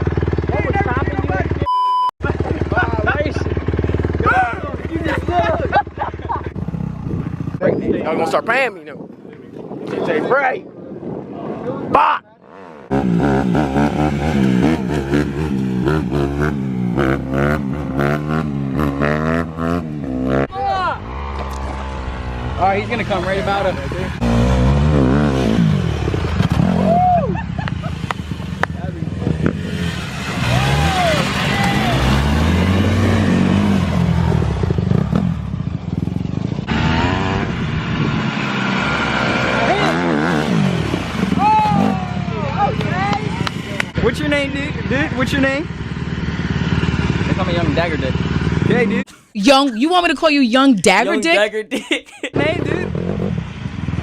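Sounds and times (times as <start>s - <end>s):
dirt bike engine revving: 12.4s - 49.1s, 52.4s - 54.0s.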